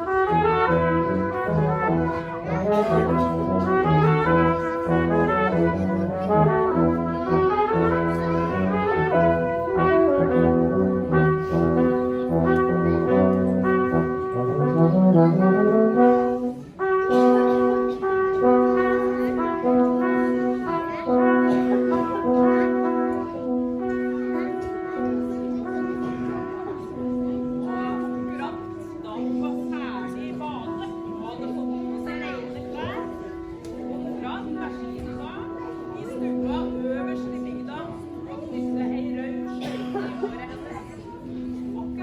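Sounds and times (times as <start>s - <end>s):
brass quartet playing: 0.0s - 29.8s.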